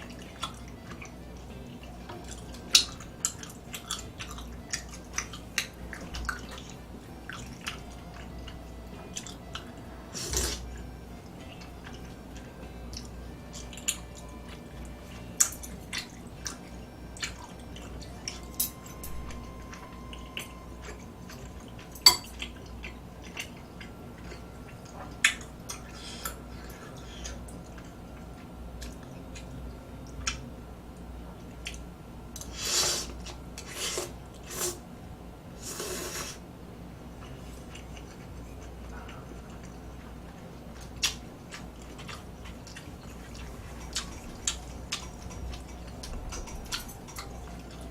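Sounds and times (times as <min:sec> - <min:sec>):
utensils clicking against a dish: 0:18.2 - 0:27.4.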